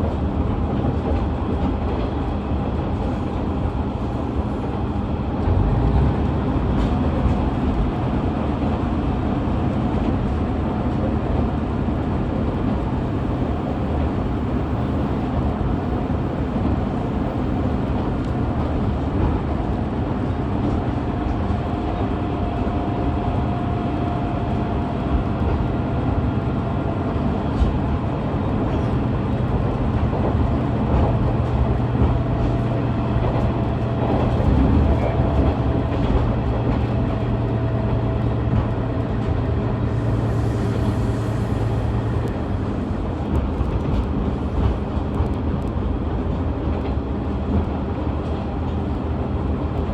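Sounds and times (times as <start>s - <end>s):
diesel engine rumble: 0.0s - 49.9s
wheels on rail: 0.0s - 49.9s
low hum: 11.7s - 19.2s, 28.5s - 45.0s.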